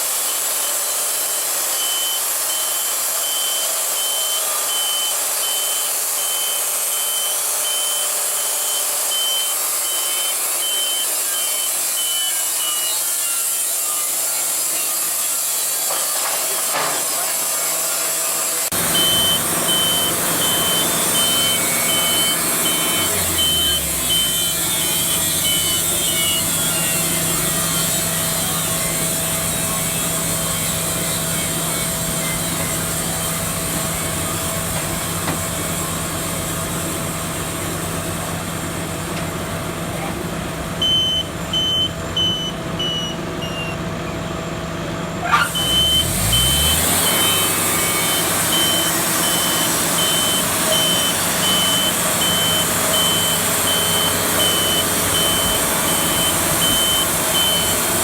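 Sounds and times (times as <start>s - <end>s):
engine-driven machinery running: 0.0s - 58.0s
back-up alarm beeping: 1.8s - 12.8s, 18.7s - 28.7s, 40.8s - 43.8s, 45.5s - 57.9s.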